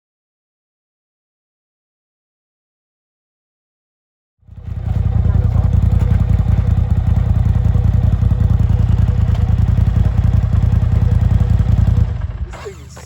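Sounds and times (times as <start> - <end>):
motorcycle engine idling: 4.4 - 13.0.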